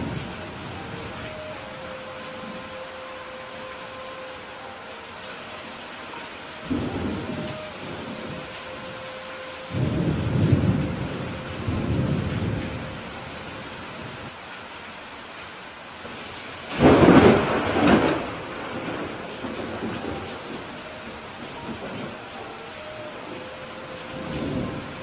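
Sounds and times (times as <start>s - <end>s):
steady rain: 0.0s - 25.0s
thunder rumbling: 6.6s - 13.3s, 16.7s - 25.0s.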